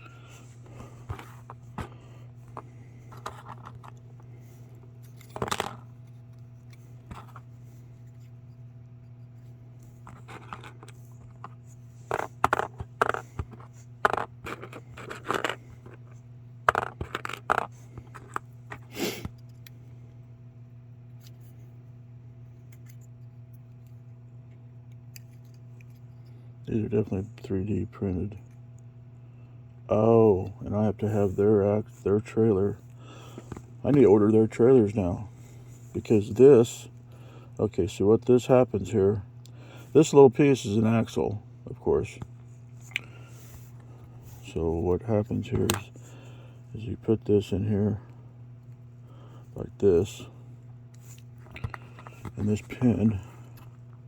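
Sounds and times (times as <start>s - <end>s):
steady low hum: 0.0s - 54.0s
plastic parts clicking and scraping: 0.6s - 7.4s, 9.9s - 19.7s, 45.3s - 45.9s, 51.0s - 53.8s.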